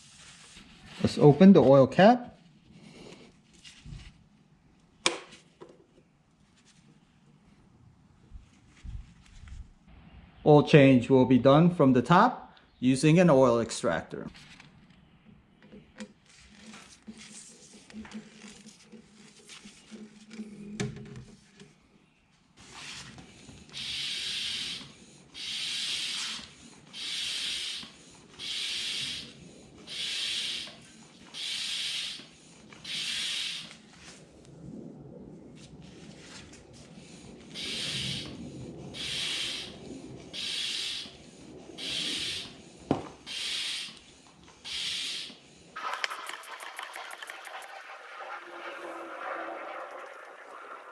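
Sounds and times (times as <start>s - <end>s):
rubbing and handling noise: 0.0s - 4.4s, 6.3s - 7.2s, 15.7s - 20.6s, 45.8s - 50.5s
hand pump hissing air: 23.7s - 33.9s, 37.5s - 38.4s, 39.0s - 39.8s, 40.4s - 50.7s.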